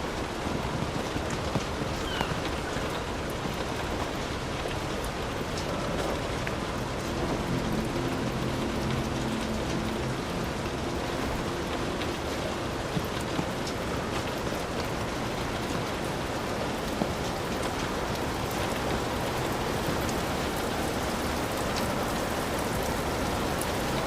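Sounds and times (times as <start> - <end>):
heavy rain on a roof: 0.0 - 24.0
faint low rumble: 1.8 - 16.2.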